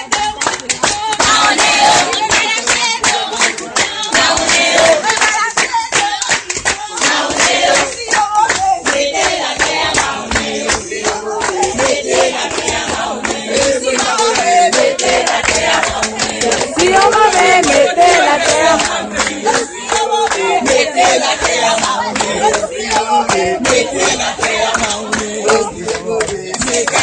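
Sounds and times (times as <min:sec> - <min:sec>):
group of people singing: 0:00.0 - 0:27.0
hands clapping: 0:00.0 - 0:27.0.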